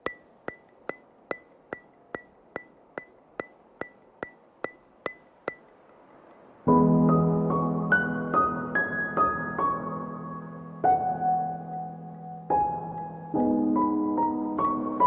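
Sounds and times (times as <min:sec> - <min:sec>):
sharp ticking clicks: 0:00.0 - 0:06.5.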